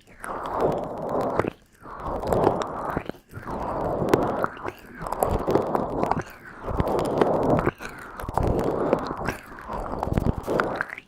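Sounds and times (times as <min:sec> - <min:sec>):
rustling noise: 0:00.0 - 0:11.0.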